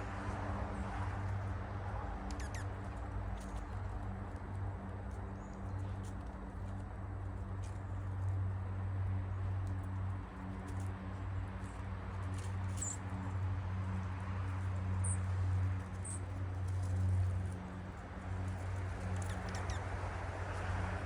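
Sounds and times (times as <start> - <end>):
birds chirping: 2.3 - 2.8, 19.2 - 20.0.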